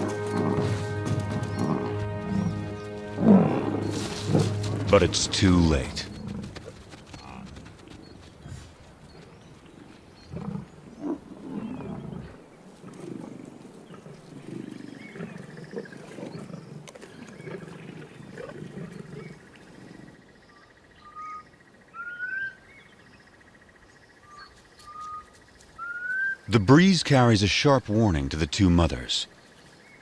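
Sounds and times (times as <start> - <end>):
lions growling: 0.0 - 7.6, 9.7 - 20.2
rising bird calls: 24.2 - 26.5.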